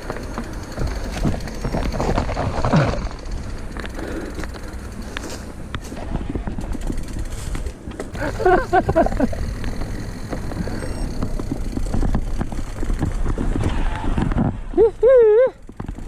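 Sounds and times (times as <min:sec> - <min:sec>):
bike clicks and rattles: 0:00.0 - 0:16.0
tyres rumbling: 0:00.0 - 0:16.0.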